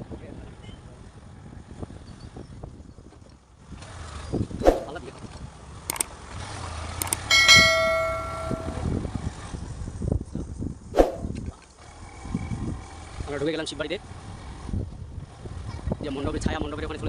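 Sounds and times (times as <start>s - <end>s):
metal bell ringing: 7.0s - 8.9s.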